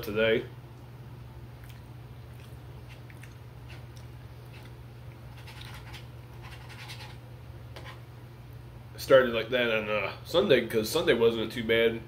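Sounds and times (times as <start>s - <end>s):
steady low hum: 0.0s - 12.0s
person chewing food: 1.5s - 6.0s.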